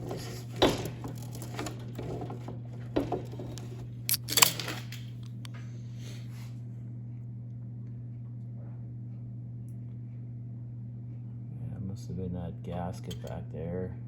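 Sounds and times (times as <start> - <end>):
hand tools clanking on metal: 0.0 - 5.0.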